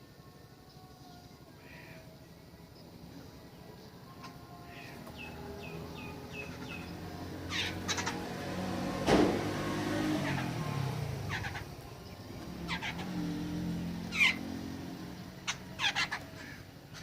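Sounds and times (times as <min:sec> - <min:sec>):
birds chirping: 0:00.0 - 0:17.0
low engine hum: 0:05.0 - 0:17.0.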